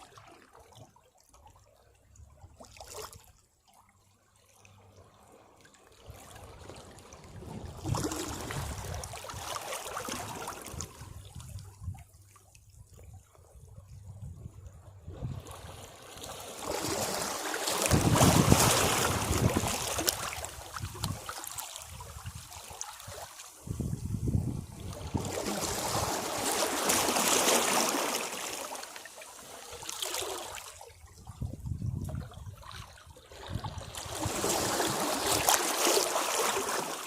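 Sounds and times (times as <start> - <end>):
sea waves crashing on rocks: 16.4 - 20.6, 25.0 - 30.6, 34.0 - 37.0.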